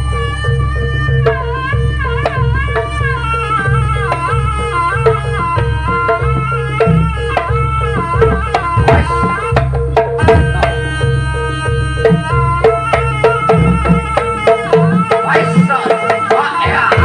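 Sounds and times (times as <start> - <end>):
wind instrument melody bending: 0.0 - 17.0
quick hand-drum strokes: 2.2 - 11.0.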